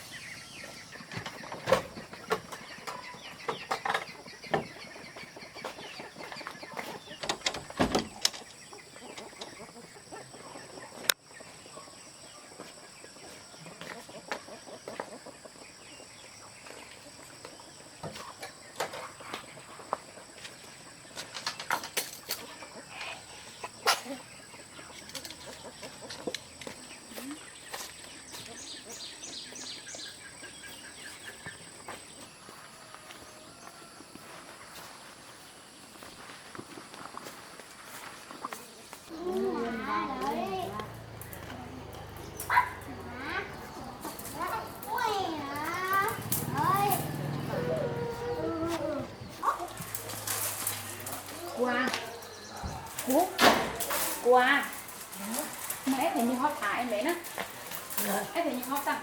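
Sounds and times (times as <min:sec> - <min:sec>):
chickens clucking: 0:00.0 - 0:35.8, 0:38.1 - 0:59.0
sharp knocks and clatters: 0:07.2 - 0:08.6.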